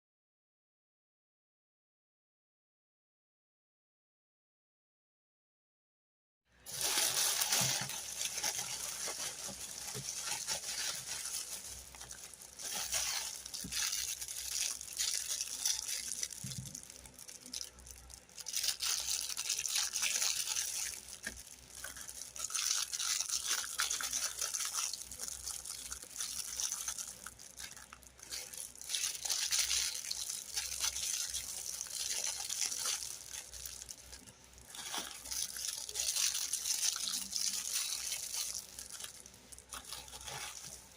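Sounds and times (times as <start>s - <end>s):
toy rustling and scraping: 6.7s - 16.7s, 30.7s - 40.9s.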